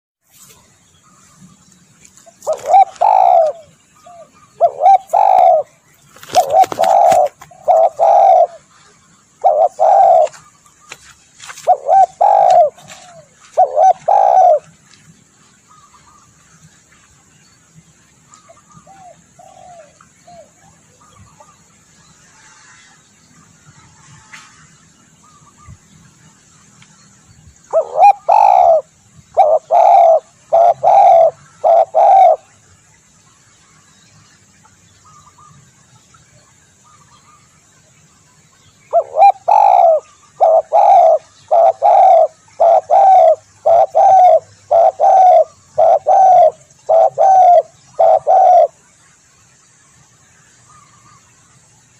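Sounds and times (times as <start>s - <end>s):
dove cooing: 2.3s - 8.7s, 9.4s - 10.5s, 11.6s - 14.7s, 18.8s - 20.8s, 27.7s - 32.5s, 38.9s - 48.8s.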